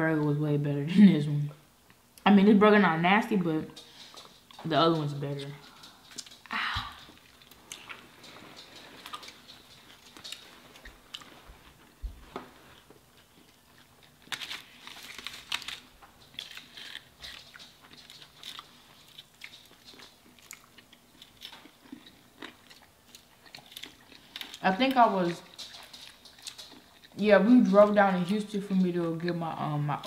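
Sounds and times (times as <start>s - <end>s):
people chewing: 3.7s - 29.7s.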